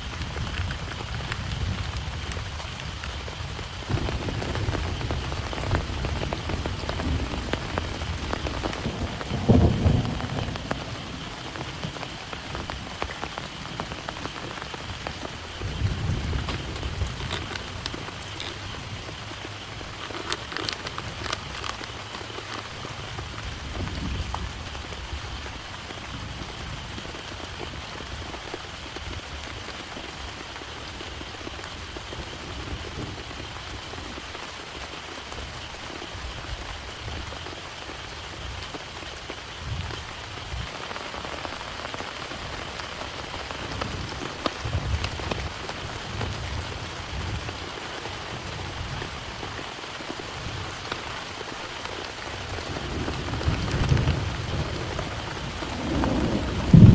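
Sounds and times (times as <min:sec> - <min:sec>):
heavy rain falling: 0:00.0 - 0:56.9
raindrops ticking: 0:00.0 - 0:56.9.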